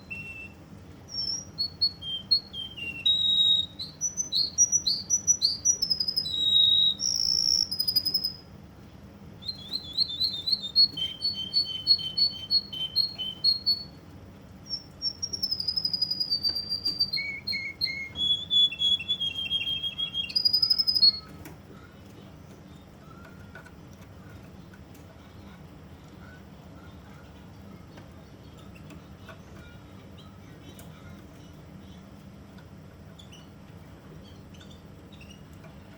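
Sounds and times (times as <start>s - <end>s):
canary singing trills: 0.0s - 8.5s, 9.4s - 14.0s, 14.6s - 21.5s, 33.1s - 35.9s.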